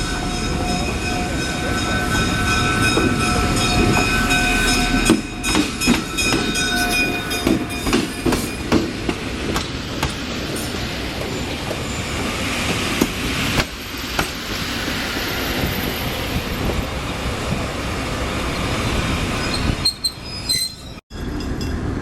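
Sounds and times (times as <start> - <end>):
high-pitched ringing: 0.0 - 8.6
train rumbling: 0.0 - 22.0
wheels clacking over rail joints: 1.1 - 22.0.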